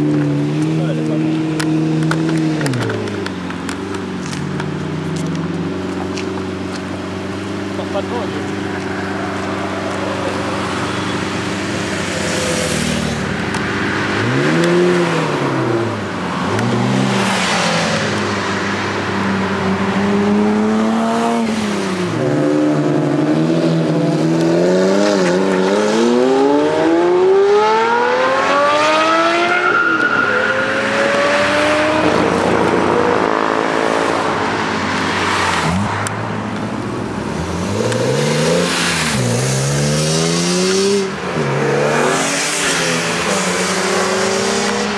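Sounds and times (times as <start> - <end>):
sports car engine revving: 0.0 - 29.6.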